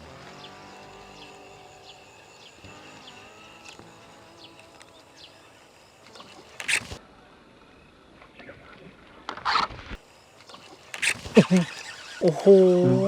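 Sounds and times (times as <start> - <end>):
faint high chirping: 0.0 - 8.5, 10.0 - 13.0
fishing reel cast rush: 6.2 - 7.0, 10.5 - 12.5.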